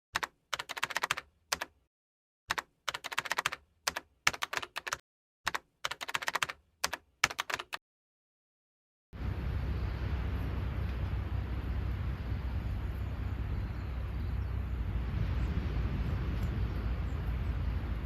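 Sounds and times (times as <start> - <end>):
keyboard key clicks: 0.2 - 1.8, 2.5 - 7.8.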